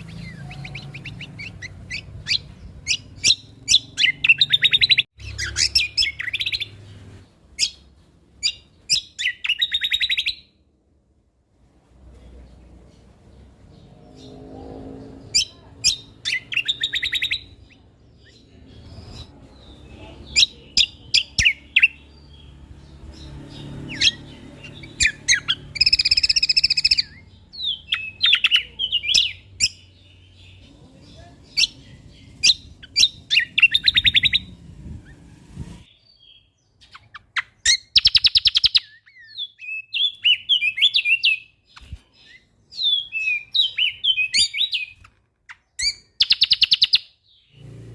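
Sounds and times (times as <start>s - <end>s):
bird singing chattering trills: 0.0s - 10.5s, 13.3s - 35.2s, 35.8s - 47.7s
faint low rumble: 30.6s - 35.9s.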